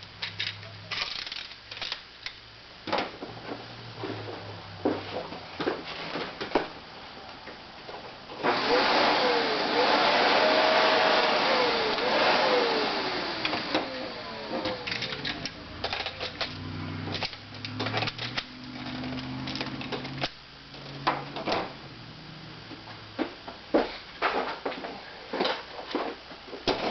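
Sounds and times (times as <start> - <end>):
vacuum cleaner running: 8.3 - 24.5.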